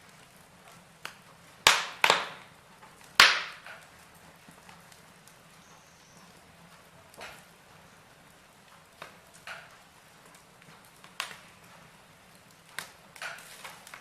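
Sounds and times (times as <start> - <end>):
faint steady hiss: 0.0 - 14.0
logs crackling and popping: 0.0 - 14.0.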